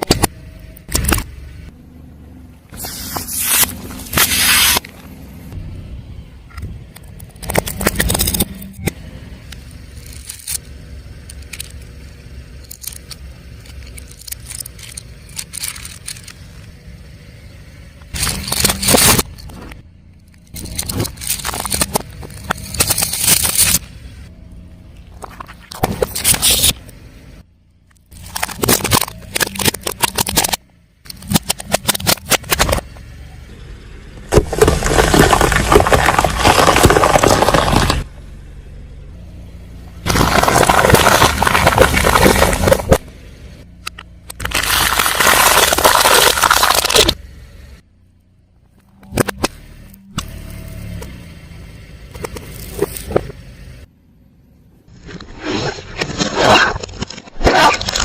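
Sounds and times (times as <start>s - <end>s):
car rumble: 0.0s - 58.0s
tyres crushing objects: 7.2s - 8.9s, 18.0s - 19.8s, 20.4s - 23.9s, 28.1s - 33.0s, 34.2s - 38.1s, 40.0s - 43.2s, 44.3s - 47.2s, 55.0s - 58.0s.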